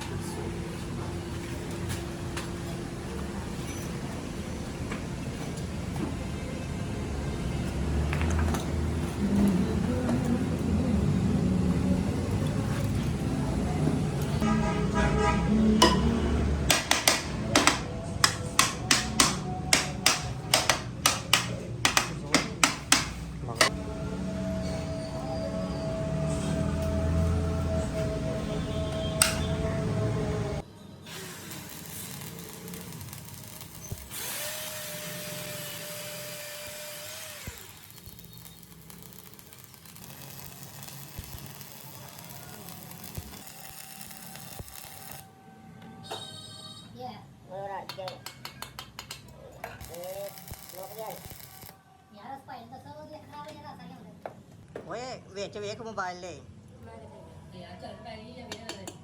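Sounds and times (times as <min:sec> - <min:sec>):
hammer striking metal: 0:15.8 - 0:23.7
power tool motor whining: 0:31.1 - 0:45.2.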